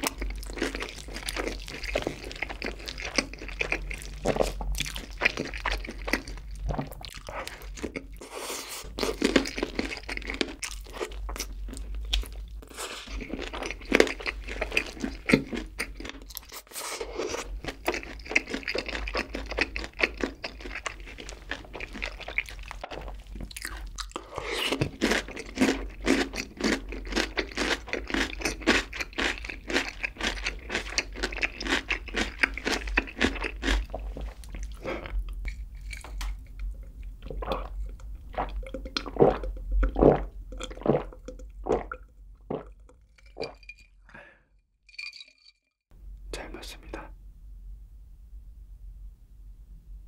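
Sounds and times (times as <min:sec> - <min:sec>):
crunchy chewing: 0:00.0 - 0:43.5
gulping a drink: 0:37.2 - 0:44.3.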